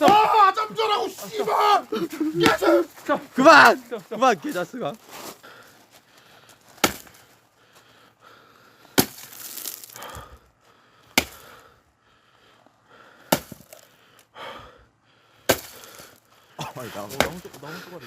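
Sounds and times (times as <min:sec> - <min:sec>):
axe chopping log: 0:00.0 - 0:00.4, 0:02.4 - 0:02.8, 0:06.8 - 0:07.2, 0:09.0 - 0:09.7, 0:11.2 - 0:11.5, 0:13.3 - 0:13.8, 0:15.5 - 0:15.9, 0:17.1 - 0:17.6.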